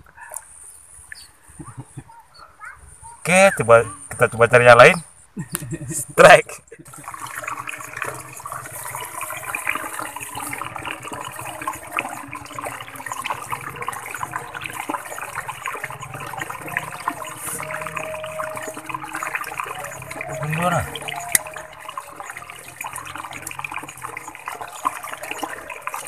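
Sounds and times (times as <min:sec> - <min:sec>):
muddy water splashing: 0:05.6 - 0:26.0.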